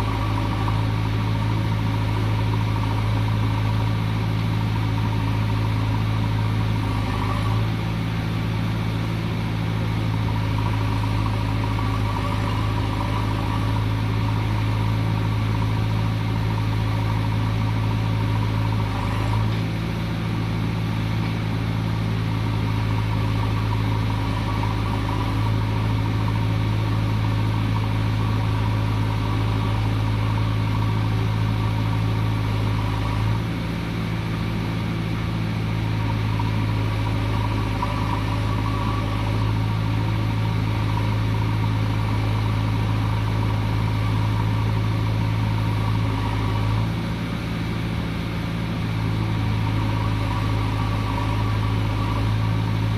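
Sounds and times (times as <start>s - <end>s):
heavy diesel engine running: 0.0s - 52.9s.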